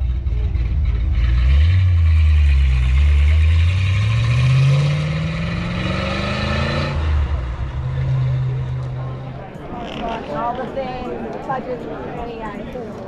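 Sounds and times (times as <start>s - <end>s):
car engine accelerating: 0.0s - 10.1s.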